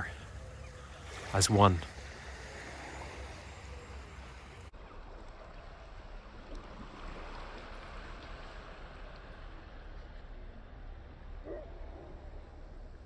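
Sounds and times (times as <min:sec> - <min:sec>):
faint hiss: 0:00.0 - 0:04.7
low outdoor rumble: 0:00.0 - 0:13.0.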